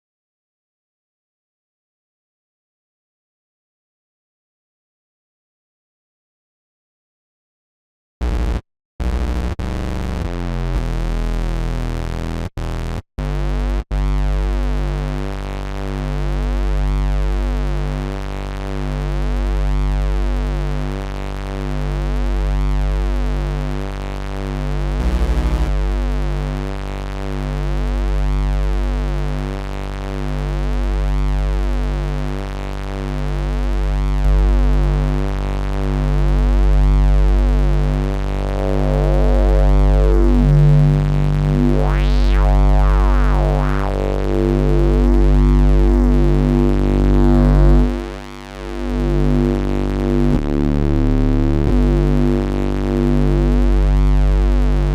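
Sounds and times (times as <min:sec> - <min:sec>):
synthesizer bass tone: 0:24.9 - 0:26.4, 0:37.4 - 0:54.9.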